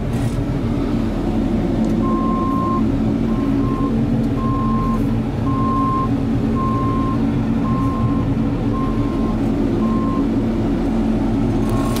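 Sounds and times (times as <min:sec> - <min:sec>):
truck diesel engine running: 0:00.0 - 0:12.0
backup alarm beeping: 0:02.0 - 0:10.4.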